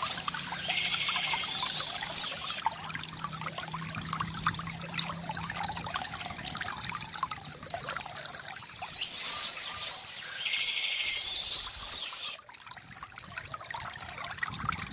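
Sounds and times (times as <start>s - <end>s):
songbird singing: 0.0s - 2.6s, 8.7s - 12.4s
stream water babbling: 0.0s - 14.9s.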